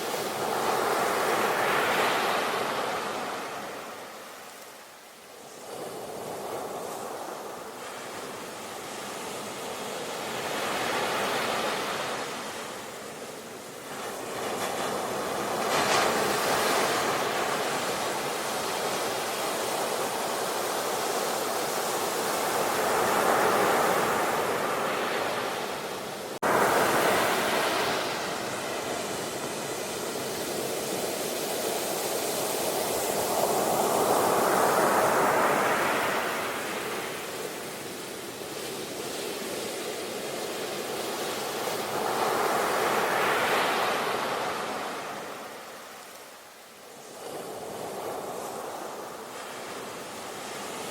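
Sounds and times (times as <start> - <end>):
ocean waves breaking: 5.6 - 46.1.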